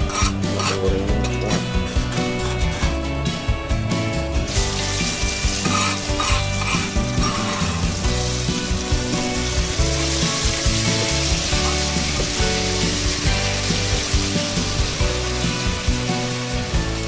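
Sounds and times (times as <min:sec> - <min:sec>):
background music with beat: 0:00.0 - 0:17.0
paste sizzling in hot oil: 0:00.0 - 0:17.0
spoon stirring in pot: 0:05.6 - 0:07.8.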